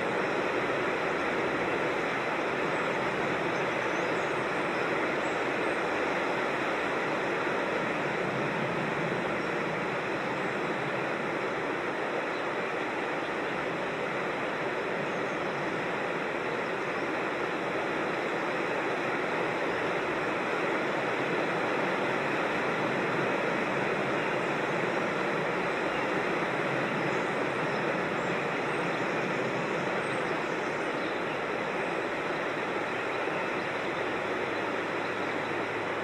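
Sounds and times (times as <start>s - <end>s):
creek water flowing over falls: 0.0s - 36.0s.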